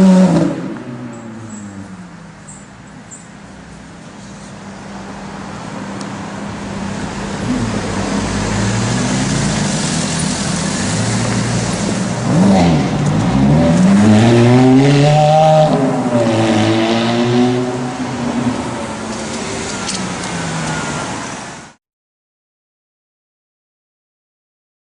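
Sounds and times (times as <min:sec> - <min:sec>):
car engine revving: 0:00.0 - 0:02.2, 0:06.2 - 0:21.7.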